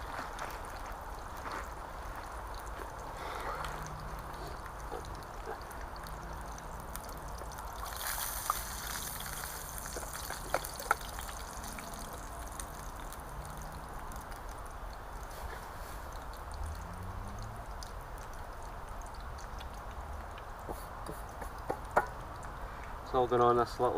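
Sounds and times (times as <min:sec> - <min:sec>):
food sizzling in a frying pan: 0:07.6 - 0:14.1.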